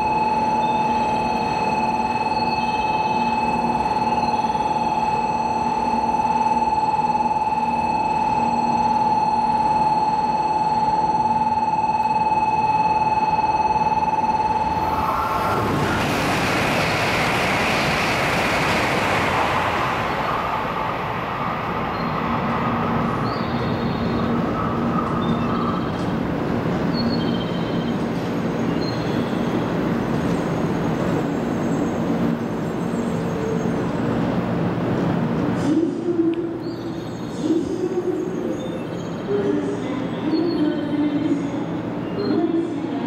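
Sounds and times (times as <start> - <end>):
steady whine: 0.0 - 26.4
train running rumble: 14.8 - 40.2.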